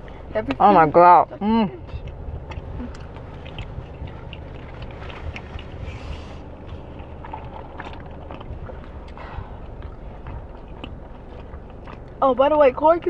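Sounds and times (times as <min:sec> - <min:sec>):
low rumble inside a car: 0:00.0 - 0:13.0
person chewing: 0:01.8 - 0:12.8
wet mouth clicks: 0:01.9 - 0:12.2.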